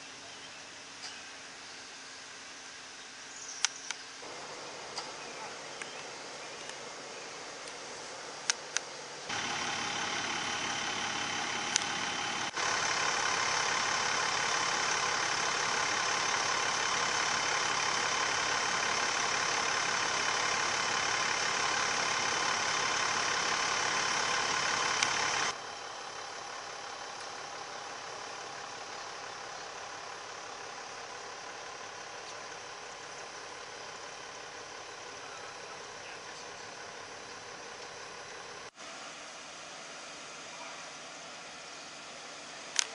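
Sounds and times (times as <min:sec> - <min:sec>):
truck engine running: 0:04.2 - 0:42.9
sharp clicks: 0:11.5 - 0:12.6, 0:24.7 - 0:25.6.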